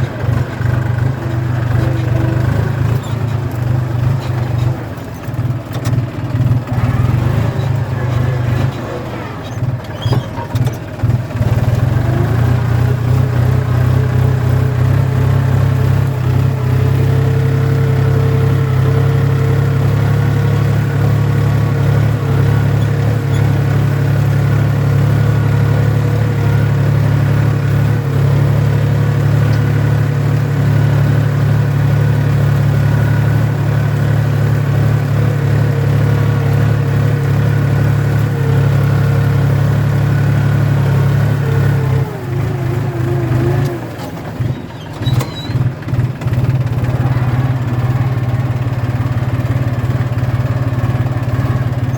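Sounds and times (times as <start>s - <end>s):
tractor engine under load: 0.0s - 51.9s.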